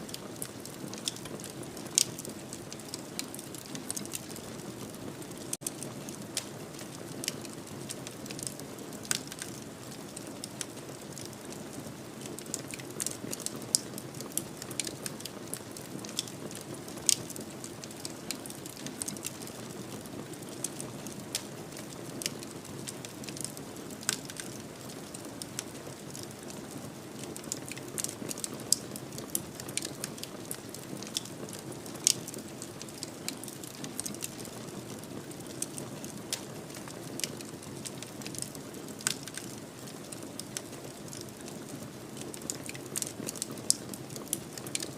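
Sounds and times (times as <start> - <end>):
wood fire crackling and popping: 0.0 - 44.9.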